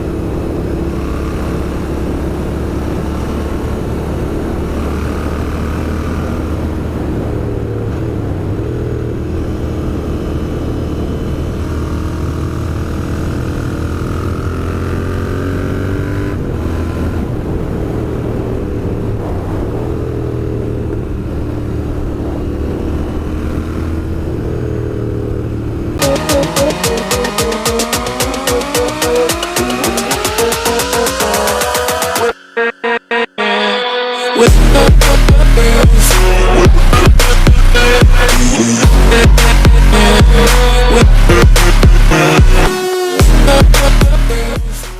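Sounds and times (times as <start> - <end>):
motorcycle engine running: 0.0 - 32.2, 34.5 - 44.8
music: 26.0 - 44.9.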